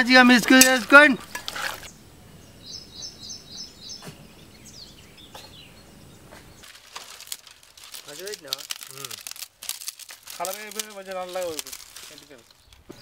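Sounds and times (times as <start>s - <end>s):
small bird chirping: 1.2s - 6.8s.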